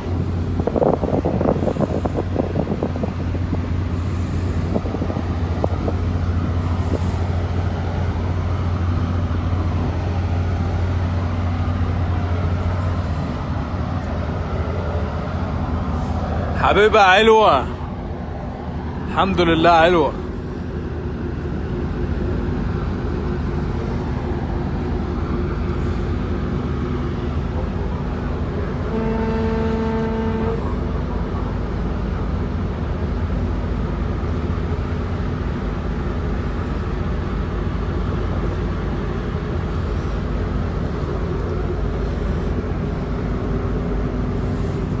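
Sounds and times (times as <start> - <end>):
low engine drone: 0.0 - 45.0
ship horn blast: 28.5 - 31.1.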